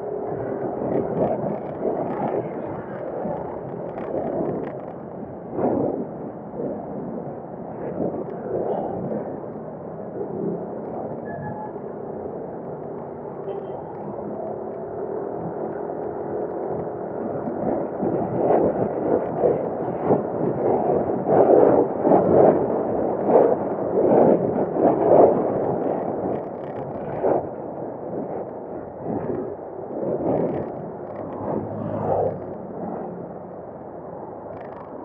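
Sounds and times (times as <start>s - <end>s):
wind buffeting microphone: 0.0s - 35.0s
motorcycle riding noise: 30.4s - 35.0s.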